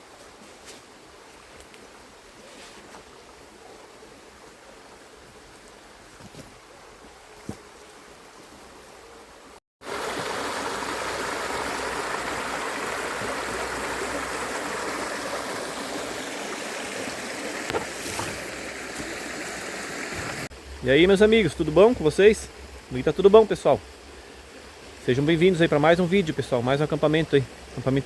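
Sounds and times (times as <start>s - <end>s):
rushing river water: 9.3s - 28.0s.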